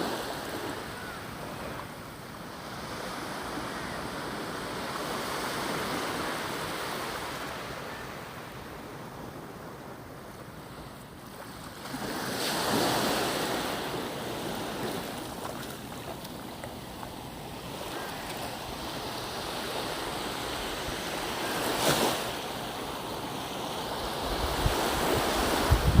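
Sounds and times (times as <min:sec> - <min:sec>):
ocean surf washing in: 0:00.0 - 0:10.9
wind buffeting microphone: 0:24.2 - 0:26.0.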